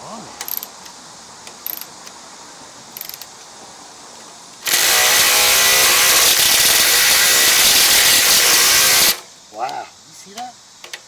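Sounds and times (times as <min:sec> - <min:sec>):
ratchet clicks: 0:00.4 - 0:00.7, 0:01.5 - 0:02.2, 0:03.0 - 0:03.3
motor-driven machine running: 0:04.6 - 0:09.2.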